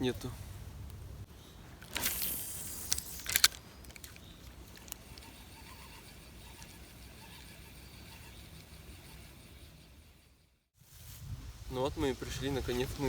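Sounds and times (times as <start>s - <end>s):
rustling through vegetation: 0.0s - 9.4s, 10.8s - 13.0s.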